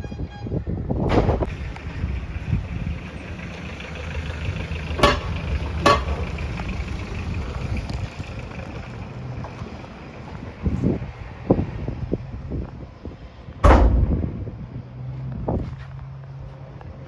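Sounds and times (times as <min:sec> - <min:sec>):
truck diesel engine idling: 0:01.4 - 0:10.3
sharp knocks: 0:05.0 - 0:06.4, 0:13.6 - 0:14.5.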